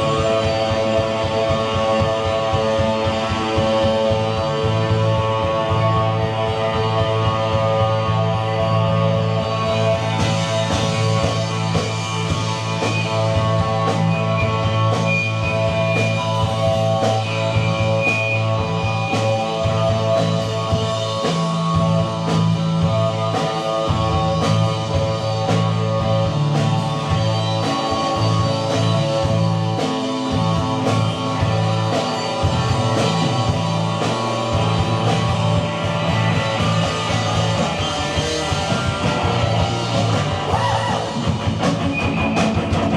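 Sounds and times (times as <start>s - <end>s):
bass guitar: 0.0s - 42.9s
electric guitar: 0.0s - 42.9s
steady drum beat: 0.0s - 42.9s.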